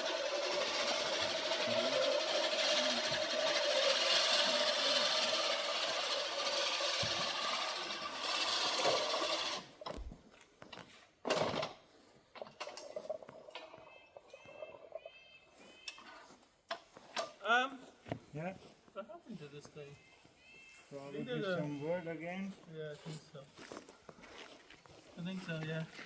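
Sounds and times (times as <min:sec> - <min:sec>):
reel mower whirring clatter: 0:00.0 - 0:10.1, 0:12.4 - 0:13.9.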